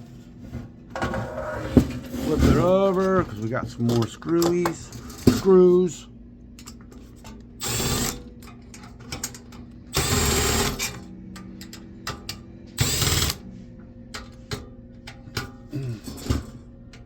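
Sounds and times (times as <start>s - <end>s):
cordless screwdriver whirring: 7.6s - 8.2s, 12.8s - 13.4s.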